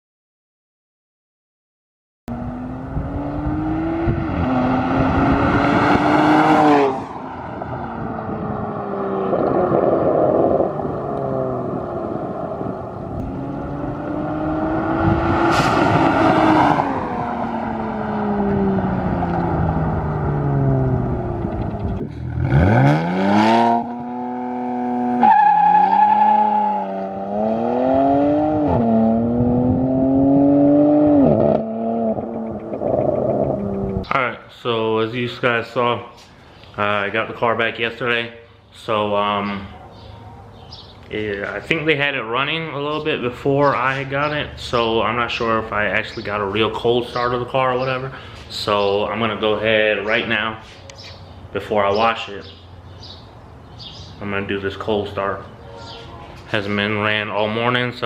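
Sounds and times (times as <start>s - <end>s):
car engine revving: 2.3s - 34.0s.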